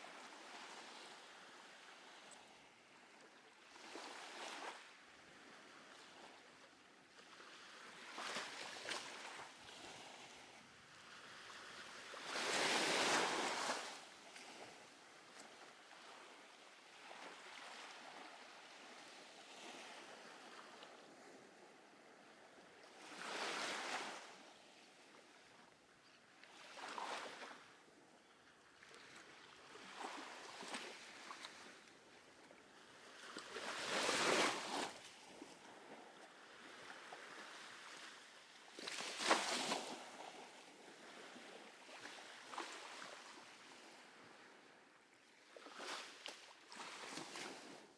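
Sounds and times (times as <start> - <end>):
waves washing up on sand: 11.5 - 16.5.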